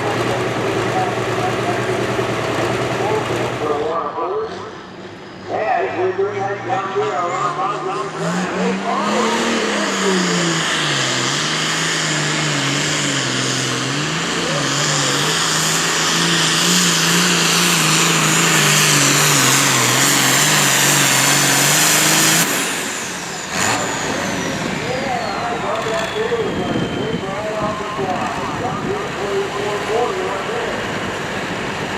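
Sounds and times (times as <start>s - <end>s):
tractor engine running under load: 0.0s - 3.8s, 9.4s - 31.9s.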